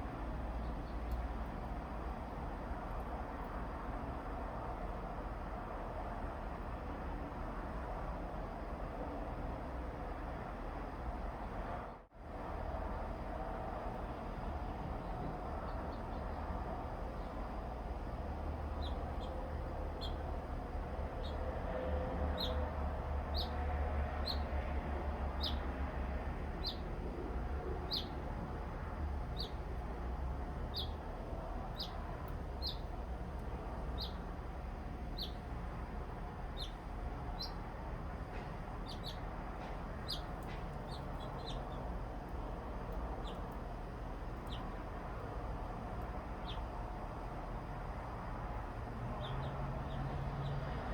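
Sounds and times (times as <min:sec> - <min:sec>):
songbird chirping: 0:18.7 - 0:20.2, 0:22.3 - 0:22.6, 0:23.3 - 0:23.6, 0:25.4 - 0:25.7, 0:26.6 - 0:26.9, 0:27.8 - 0:28.2, 0:30.7 - 0:31.0, 0:31.7 - 0:33.0, 0:33.9 - 0:34.2, 0:35.1 - 0:35.5, 0:36.5 - 0:37.6, 0:38.8 - 0:41.9, 0:43.2 - 0:43.6, 0:44.4 - 0:44.8, 0:46.4 - 0:46.7, 0:49.2 - 0:50.7
steady low rumble: 0:24.2 - 0:50.0.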